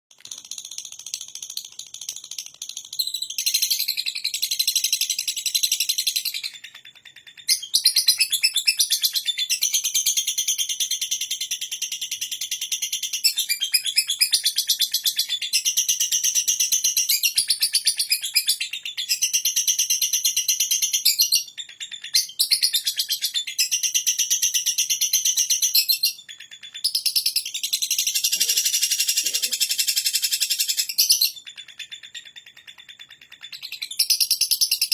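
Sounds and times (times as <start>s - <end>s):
bird chattering trill: 0.5s - 10.0s, 25.0s - 34.9s.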